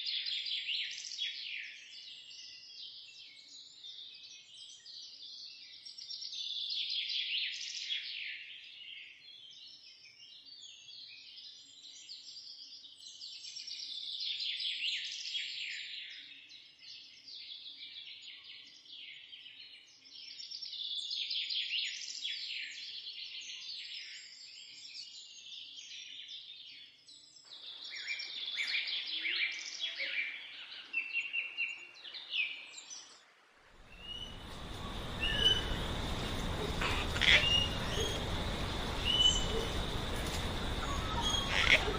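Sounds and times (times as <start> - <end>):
songbird singing: 33.8 - 41.9.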